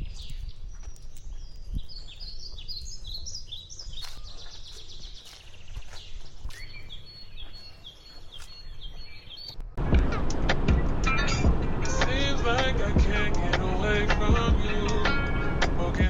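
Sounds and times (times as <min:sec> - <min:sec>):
birds chirping: 0:00.0 - 0:09.8
low background rumble: 0:09.6 - 0:16.0.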